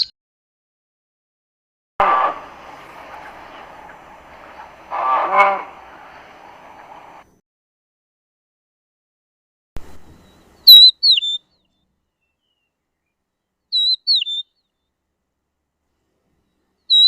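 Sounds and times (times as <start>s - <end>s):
bird whistling: 10.2s - 12.7s, 13.7s - 14.5s.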